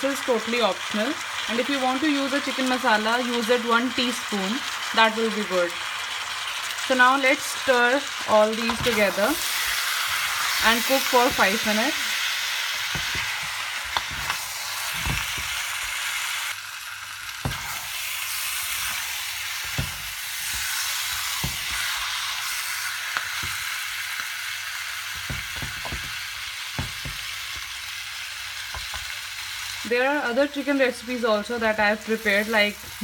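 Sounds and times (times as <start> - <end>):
chicken sizzling in a wok: 0.0 - 33.0
wooden spatula knocking on pan: 12.9 - 14.2, 14.9 - 15.6, 19.7 - 20.6, 25.2 - 26.2, 26.8 - 27.6.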